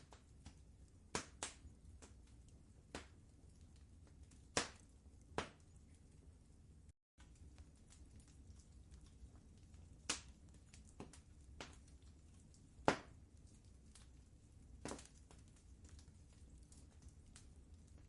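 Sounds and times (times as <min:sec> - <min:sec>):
low steady rumble: 0:00.0 - 0:18.0
wood fire crackling: 0:00.0 - 0:18.0.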